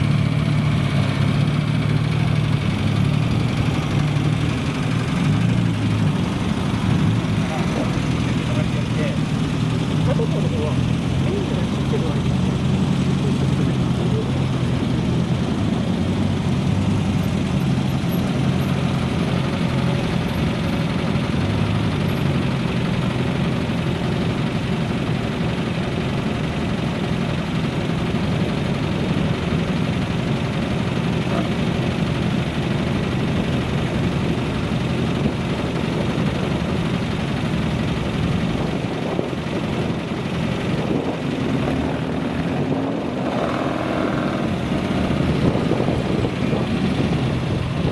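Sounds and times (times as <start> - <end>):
car engine idling: 0.0 - 47.9.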